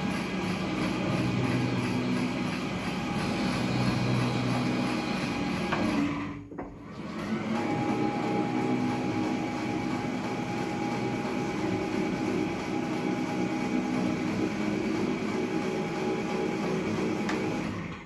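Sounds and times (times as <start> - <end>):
steady machine whine: 0.0 - 6.2.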